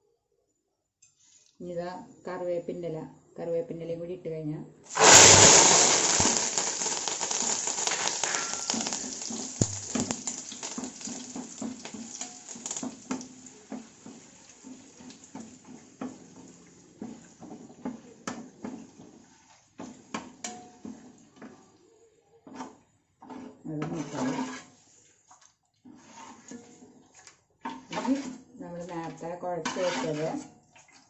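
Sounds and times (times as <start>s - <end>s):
leaves sizzling in hot oil: 4.9s - 21.0s, 29.2s - 30.4s.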